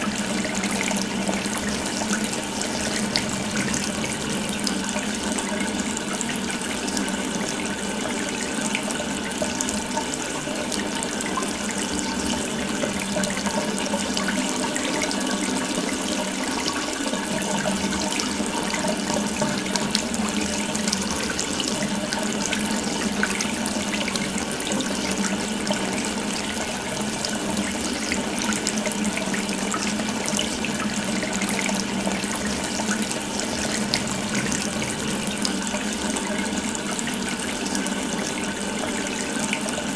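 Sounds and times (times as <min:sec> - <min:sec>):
tap water pouring into sink: 0:00.0 - 0:39.9.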